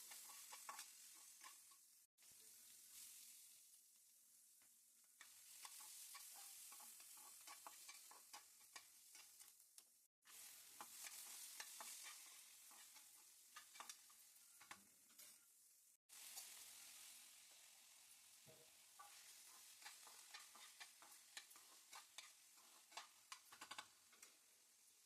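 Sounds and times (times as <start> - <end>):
spatula scraping a pan: 0.0 - 3.3, 5.2 - 9.6, 10.2 - 15.6, 18.5 - 25.0
food sizzling in a pan: 0.0 - 25.0.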